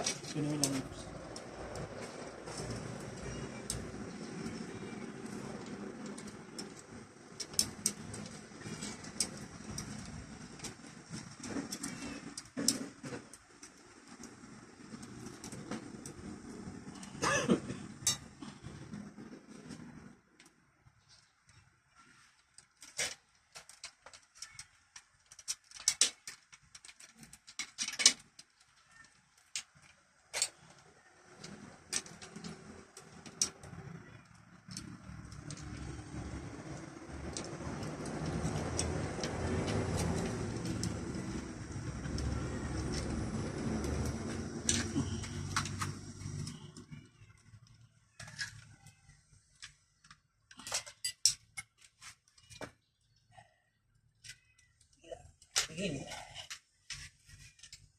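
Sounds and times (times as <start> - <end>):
sharp clicks and light knocks: 22.4 - 52.9.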